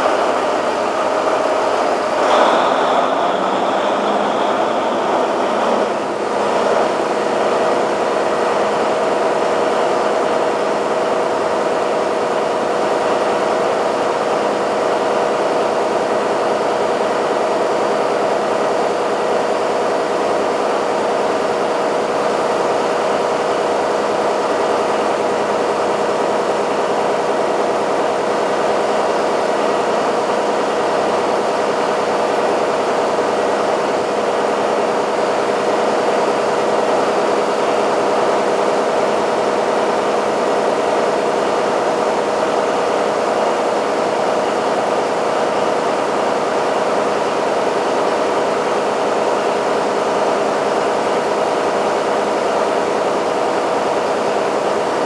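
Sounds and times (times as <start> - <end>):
diesel generator engine drone: 1.6 - 7.4.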